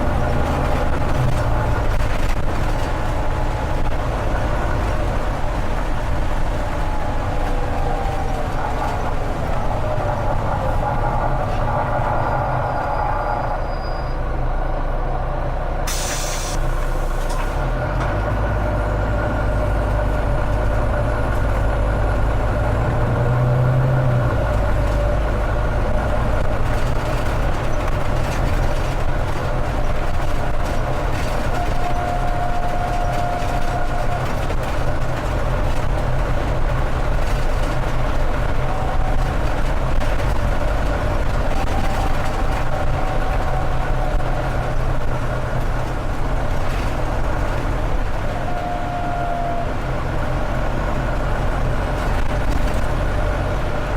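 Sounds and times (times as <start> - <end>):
diesel engine drone: 0.0 - 53.9
turbocharger whistling: 12.1 - 14.3.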